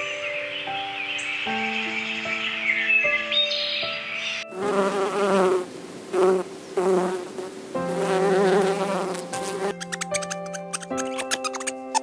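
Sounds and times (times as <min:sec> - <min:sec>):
soft background music: 0:00.0 - 0:12.0
honeybees buzzing: 0:04.5 - 0:11.1.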